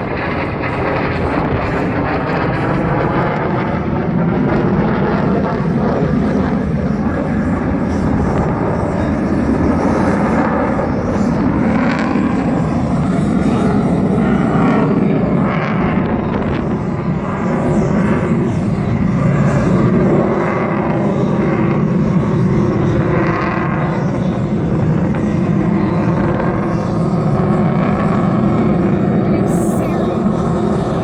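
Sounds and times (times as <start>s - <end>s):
fighter jet in flight: 0.0s - 31.0s.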